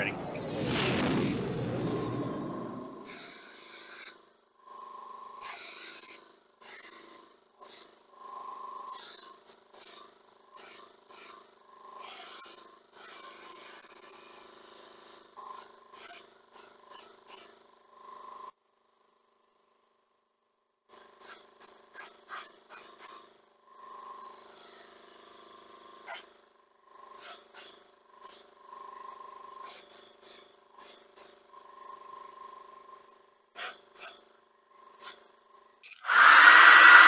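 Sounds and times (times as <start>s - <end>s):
airbrush spraying: 3.0s - 4.2s, 5.4s - 7.9s, 12.0s - 17.5s, 29.6s - 31.3s, 33.6s - 34.1s, 36.0s - 37.0s.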